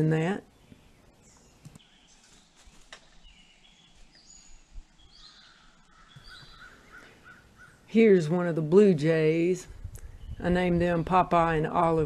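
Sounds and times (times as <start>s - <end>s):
small birds whistling: 0.6s - 7.9s.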